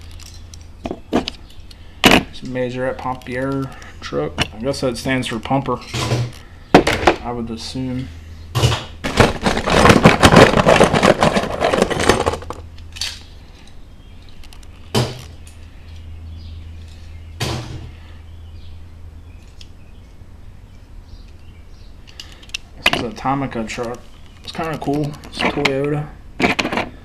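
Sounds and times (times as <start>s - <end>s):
steady low hum: 0.0s - 27.0s
metal toy cars clattering: 8.6s - 13.2s.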